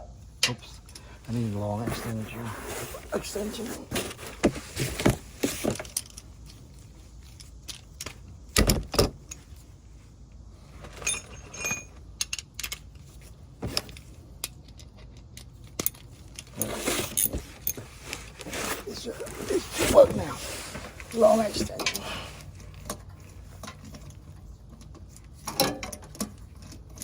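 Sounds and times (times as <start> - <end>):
metal hand tools clinking: 11.0 - 12.8.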